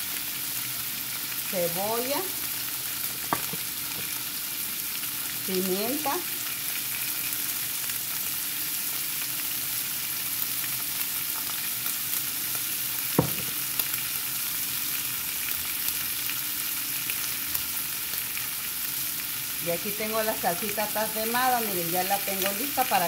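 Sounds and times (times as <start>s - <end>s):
food sizzling in hot oil: 0.0s - 23.0s
sharp knock: 13.2s - 13.6s.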